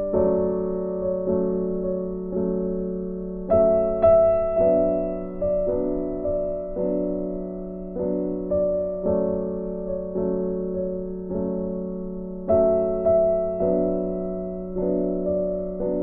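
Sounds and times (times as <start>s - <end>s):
soft piano chords: 0.0s - 16.0s.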